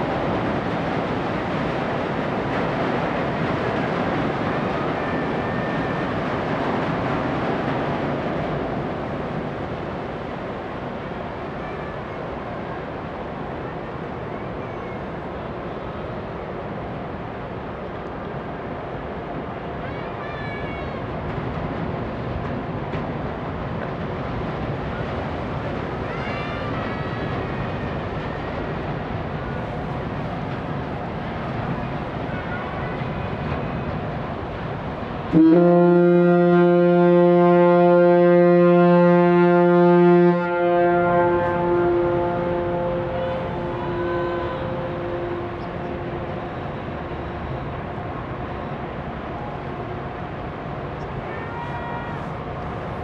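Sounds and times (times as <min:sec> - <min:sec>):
ship engines: 0:00.0 - 0:53.0.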